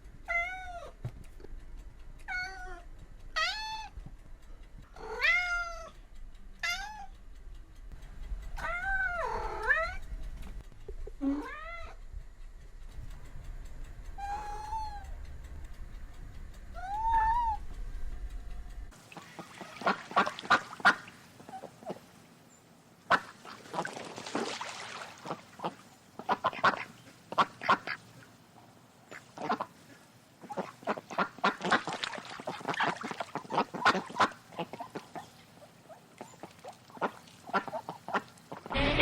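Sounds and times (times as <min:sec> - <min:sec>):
birds calling: 0:19.0 - 0:24.1, 0:24.8 - 0:39.0.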